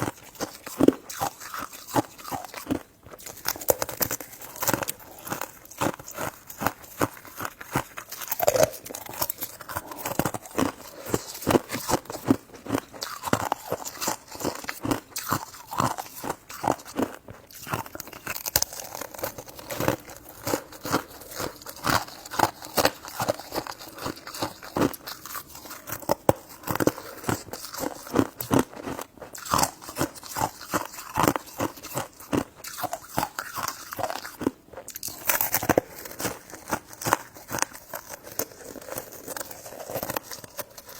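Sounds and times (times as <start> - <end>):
person chewing crunchy food: 0.0 - 40.9
wet mouth clicks: 7.8 - 12.1.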